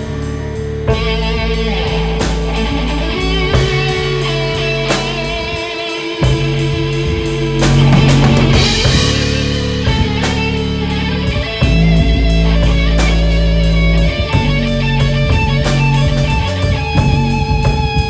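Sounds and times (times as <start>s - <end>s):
bass guitar: 0.0s - 18.0s
drum kit: 0.0s - 18.0s
electric guitar: 0.0s - 18.0s.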